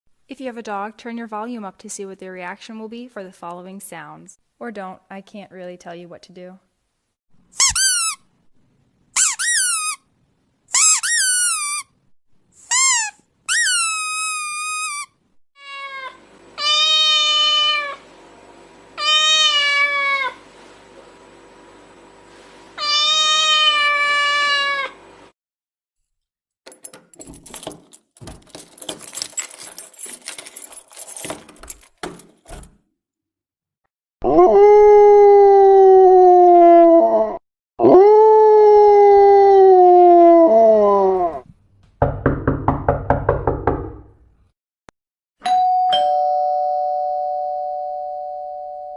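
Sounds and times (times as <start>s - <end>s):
cat meowing: 15.6s - 18.0s, 19.0s - 20.4s, 22.8s - 25.0s
two-tone doorbell chime: 45.4s - 48.9s.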